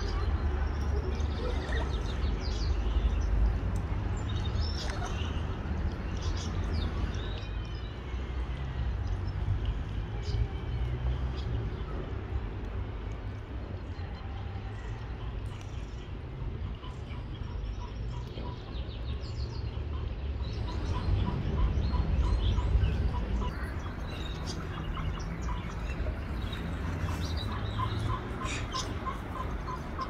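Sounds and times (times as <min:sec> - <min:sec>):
birds chirping: 0:12.8 - 0:30.0.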